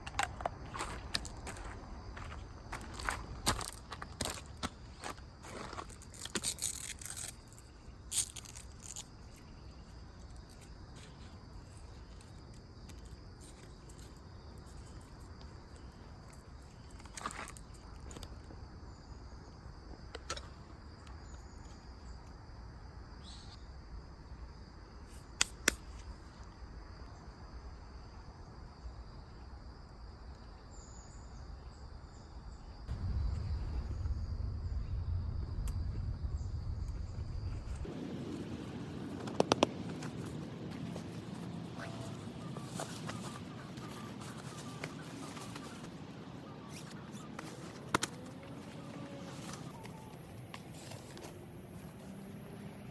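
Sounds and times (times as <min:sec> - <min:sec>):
insects chirring: 0:00.0 - 0:52.9
low rumble: 0:32.9 - 0:39.3.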